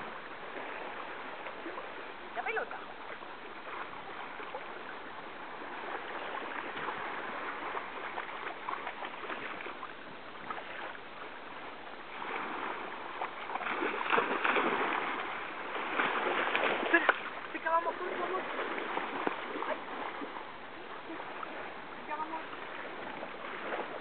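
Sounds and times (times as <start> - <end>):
sea water splashing in shallows: 0.0 - 24.0.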